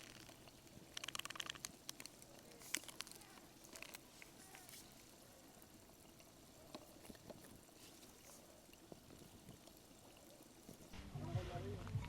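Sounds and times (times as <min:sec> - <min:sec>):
faint outdoor hiss: 0:00.0 - 0:12.0.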